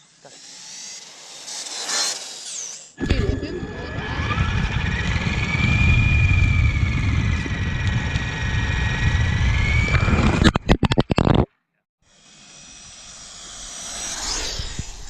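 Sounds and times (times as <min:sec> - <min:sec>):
electric motor whine: 0:00.0 - 0:10.5, 0:12.1 - 0:15.0
heavy low rumble: 0:03.0 - 0:10.7.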